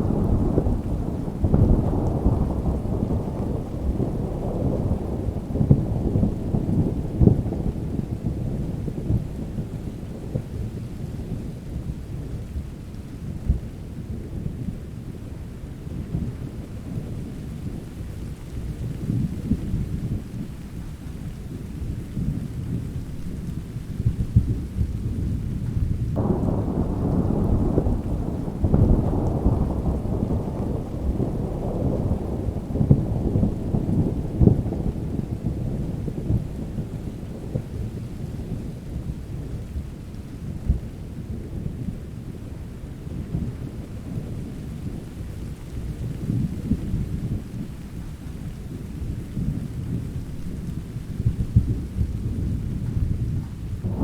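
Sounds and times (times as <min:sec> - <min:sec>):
thunder rumbling: 0:00.0 - 0:15.0, 0:21.3 - 0:54.0
steady rain: 0:00.0 - 0:54.0
loud thunder roll: 0:22.2 - 0:38.7, 0:49.3 - 0:54.0.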